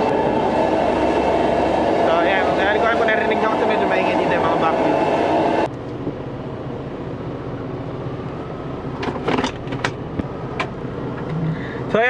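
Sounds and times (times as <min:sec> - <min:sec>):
vacuum cleaners running: 0:00.0 - 0:05.7
vehicle engine hum: 0:00.0 - 0:12.0.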